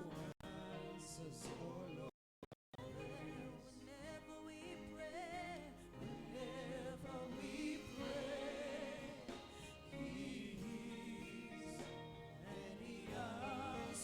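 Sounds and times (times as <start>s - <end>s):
person singing with vibrato: 2.8s - 14.0s
sustained instrumental backing: 2.8s - 14.0s.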